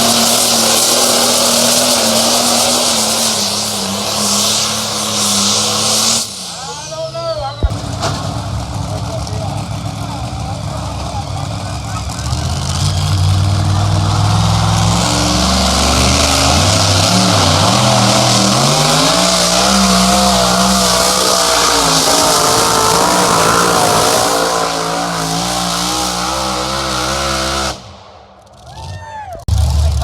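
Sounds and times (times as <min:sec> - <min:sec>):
loud hiss: 0:00.0 - 0:08.5, 0:15.7 - 0:28.0
vehicle engine running hard: 0:00.0 - 0:30.0.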